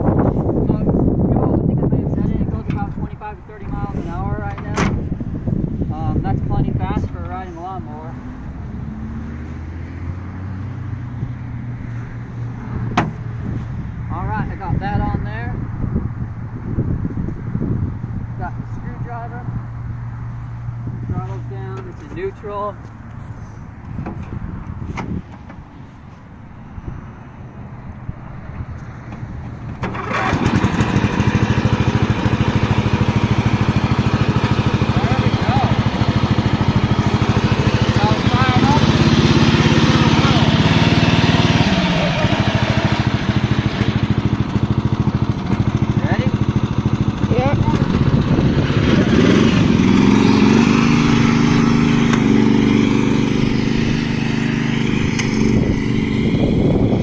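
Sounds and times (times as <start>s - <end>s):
lawn mower engine running: 29.1s - 57.0s.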